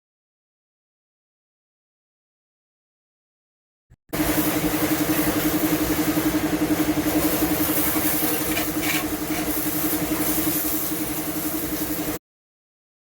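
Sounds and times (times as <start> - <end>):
motor pulsing hum: 4.1 - 12.2
hiss: 4.2 - 12.2.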